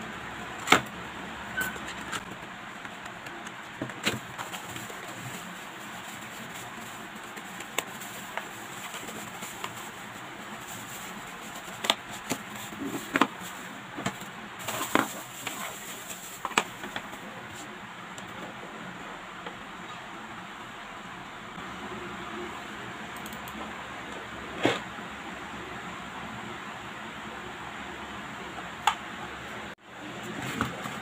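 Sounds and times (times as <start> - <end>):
plastic wrap crinkling: 3.8 - 17.2.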